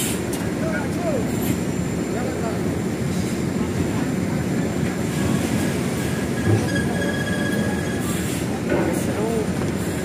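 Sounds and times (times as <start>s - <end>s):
heavy diesel trucks rumbling: 0.0s - 10.0s
thin high squeal: 6.1s - 8.3s.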